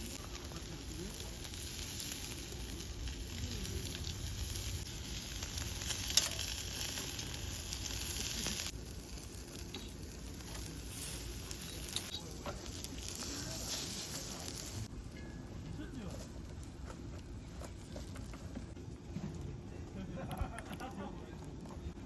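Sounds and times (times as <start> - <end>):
food sizzling over charcoal: 0.0 - 18.8, 20.0 - 22.0.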